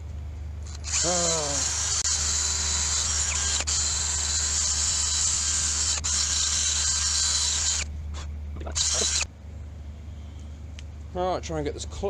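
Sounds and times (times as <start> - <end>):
power tool grinding: 0.7 - 9.3.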